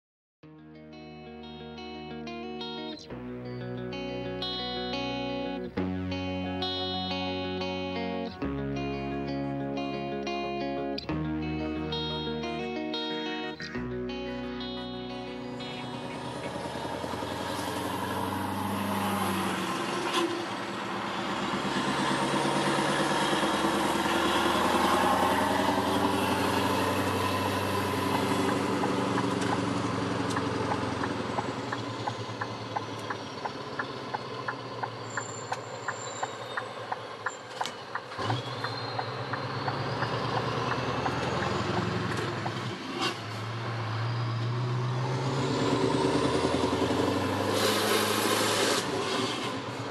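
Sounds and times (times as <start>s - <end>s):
diesel truck engine running: 13.7s - 49.9s
regular ticking: 25.6s - 42.6s
sharp clicks: 28.0s - 42.6s.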